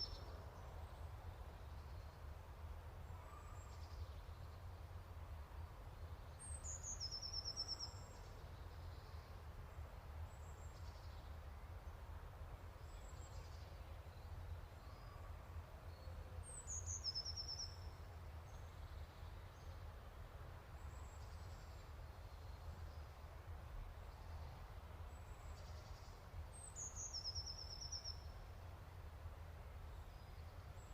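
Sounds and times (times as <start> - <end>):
faint songbird singing: 0.0 - 20.0, 20.6 - 30.9.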